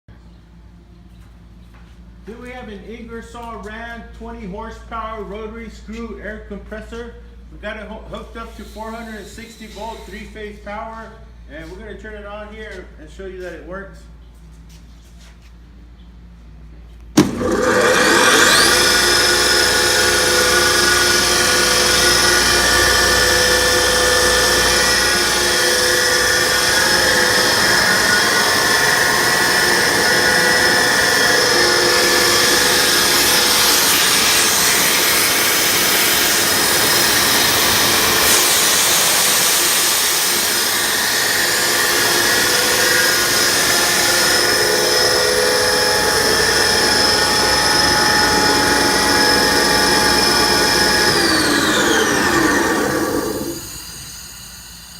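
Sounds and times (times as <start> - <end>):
air compressor whining and hissing: 8.1 - 11.8, 17.1 - 54.9.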